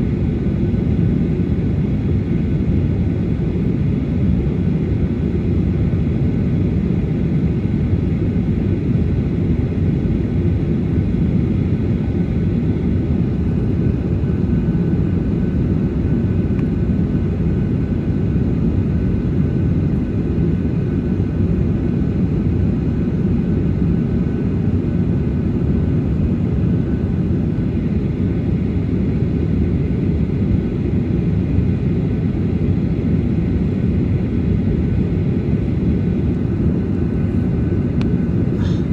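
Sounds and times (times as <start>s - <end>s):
jet engines low rumble: 0.0s - 38.9s.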